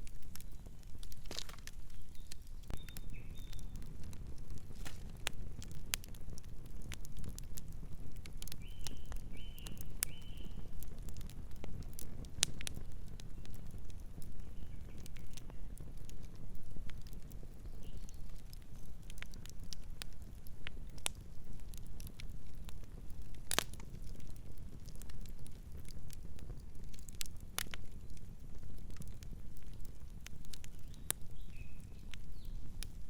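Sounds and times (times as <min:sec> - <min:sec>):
burning wood popping: 0:00.0 - 0:33.0
campfire crackling: 0:00.0 - 0:33.0.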